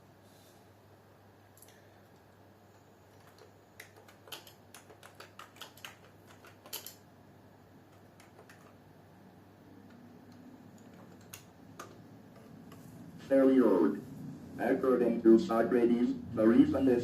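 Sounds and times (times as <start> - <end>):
typing on computer keyboard: 3.1 - 7.0, 7.9 - 8.8, 9.8 - 12.5.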